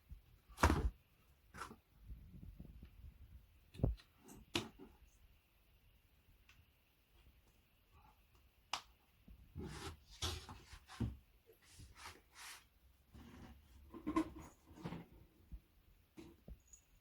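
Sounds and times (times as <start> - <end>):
rustling and scraping: 9.5 - 15.5.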